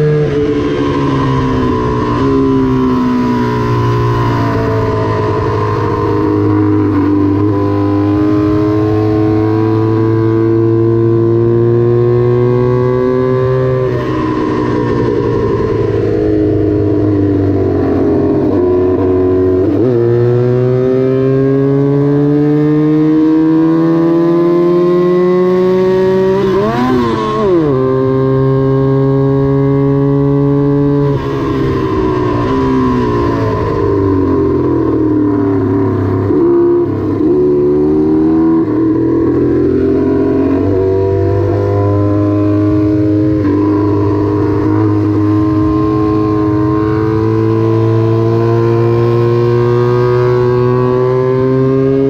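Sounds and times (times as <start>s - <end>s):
racing motorcycle engine revving: 0.0s - 52.0s.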